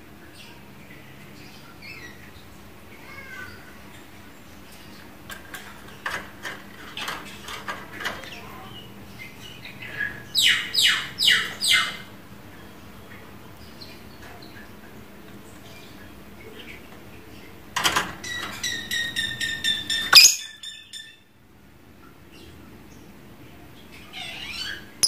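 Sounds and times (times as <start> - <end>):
lovebird chirping: 18.6 - 21.2
shrill downward bird calls: 18.6 - 21.2.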